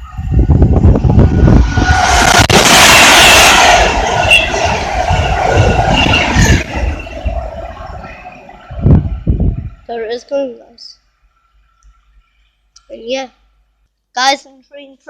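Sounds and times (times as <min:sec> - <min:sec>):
train whine: 0:00.0 - 0:10.4
electric train passing at speed: 0:00.0 - 0:11.5.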